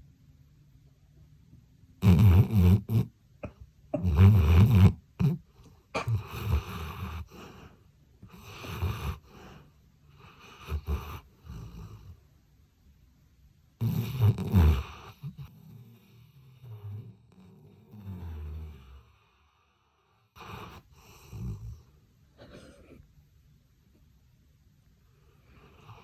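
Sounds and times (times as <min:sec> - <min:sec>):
dog snoring: 0:02.0 - 0:12.2, 0:13.8 - 0:23.0, 0:25.2 - 0:26.0.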